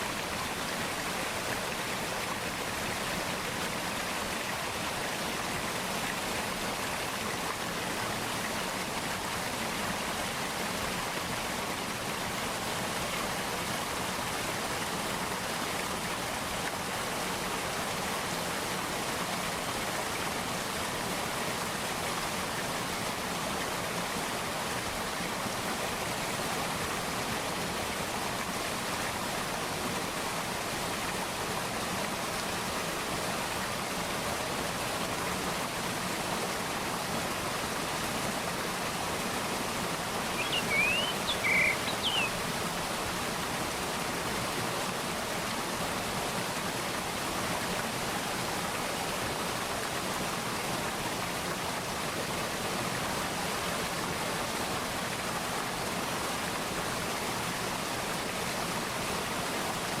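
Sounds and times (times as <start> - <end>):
stream flowing: 0.0 - 60.0
bird calling high notes: 40.4 - 42.4.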